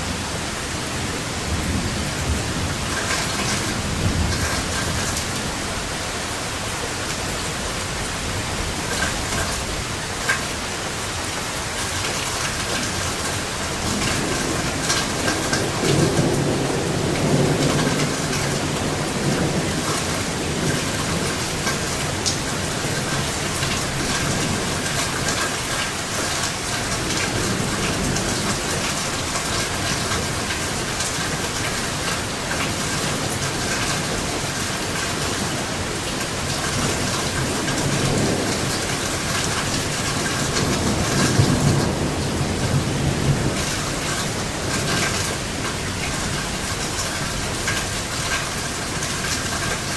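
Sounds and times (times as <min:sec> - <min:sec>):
rain falling: 0:00.0 - 0:49.9
thunder rumbling: 0:13.7 - 0:25.3.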